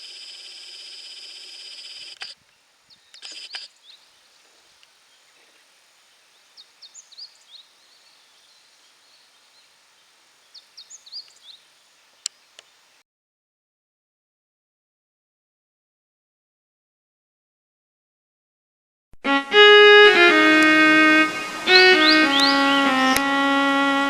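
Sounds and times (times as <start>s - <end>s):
small bird chirping: 0.0s - 13.0s, 22.0s - 22.7s.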